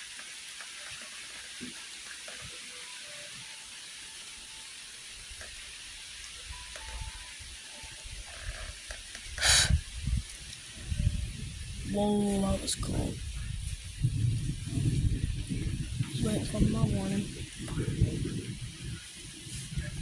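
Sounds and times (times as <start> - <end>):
rain hissing: 0.0 - 20.0
thunder rumbling: 9.7 - 20.0.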